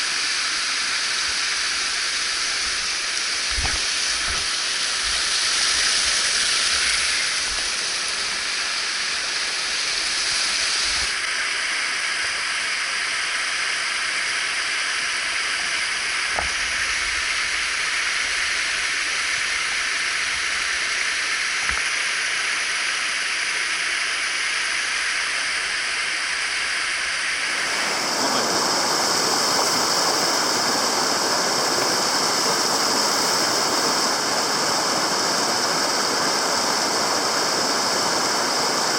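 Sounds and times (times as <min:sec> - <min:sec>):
mountain stream rushing: 0:27.3 - 0:38.9.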